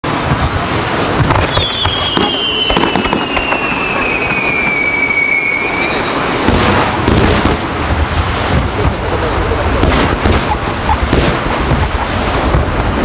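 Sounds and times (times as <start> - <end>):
fireworks bangs and crackling: 0.0 - 13.0
firework whistle falling in pitch: 1.5 - 6.4.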